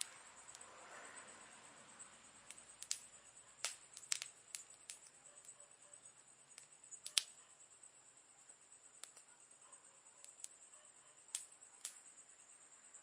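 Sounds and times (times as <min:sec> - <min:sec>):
wood fire crackling: 0:00.0 - 0:01.0, 0:02.0 - 0:05.6, 0:06.3 - 0:07.4, 0:08.7 - 0:09.3, 0:10.2 - 0:10.6, 0:11.2 - 0:12.1.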